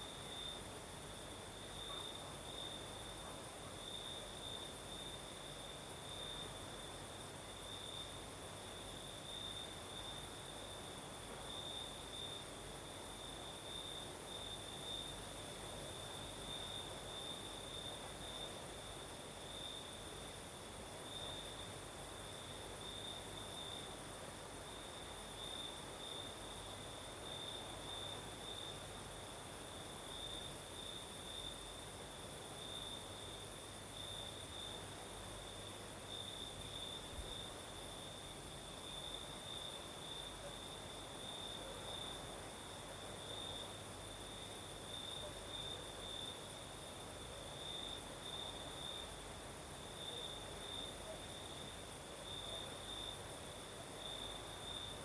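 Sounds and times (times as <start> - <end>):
soft breeze hiss: 0.0 - 55.0
crickets trilling: 30.1 - 55.0.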